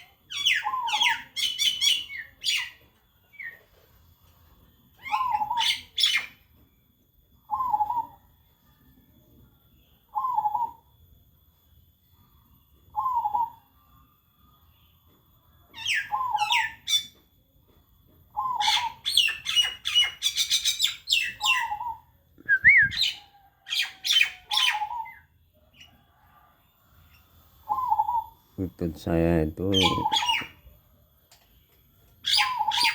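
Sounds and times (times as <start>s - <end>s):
small birds chirping: 18.3s - 26.0s, 26.9s - 30.8s, 32.2s - 32.9s
dove cooing: 27.7s - 28.4s.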